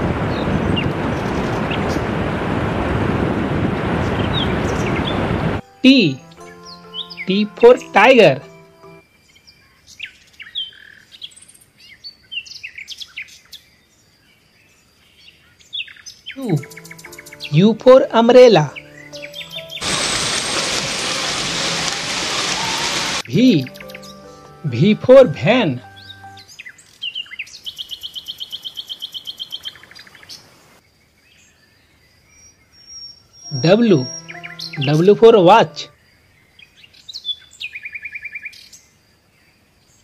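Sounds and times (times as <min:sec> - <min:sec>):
fast high bird trill: 0:33.5 - 0:35.9.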